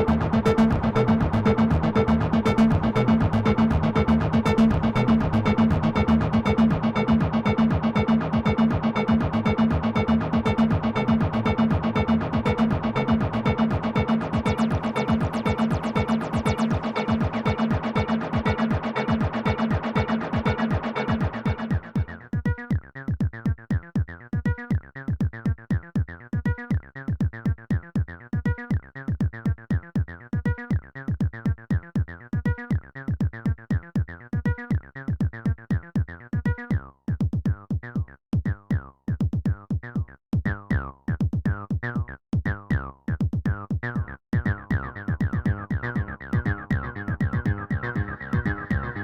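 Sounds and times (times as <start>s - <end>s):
synth bass line: 0.0s - 22.6s, 44.1s - 49.0s
drum machine beat: 0.0s - 49.0s.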